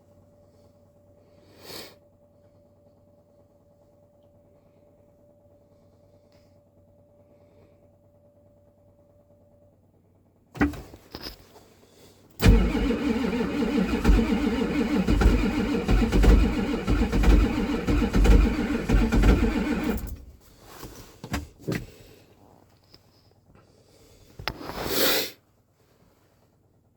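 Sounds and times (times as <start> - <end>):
diesel engine cranking: 12.4 - 20.8.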